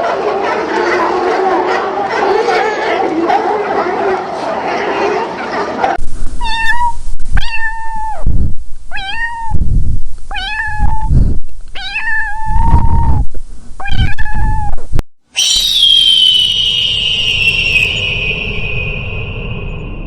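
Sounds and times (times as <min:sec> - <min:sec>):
cat meowing: 0:06.4 - 0:08.2, 0:08.9 - 0:09.6, 0:10.3 - 0:11.1, 0:11.8 - 0:13.2, 0:13.8 - 0:14.8.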